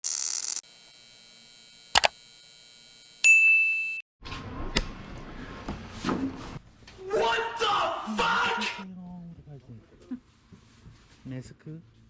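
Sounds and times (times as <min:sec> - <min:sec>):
click: 0:02.0 - 0:02.2.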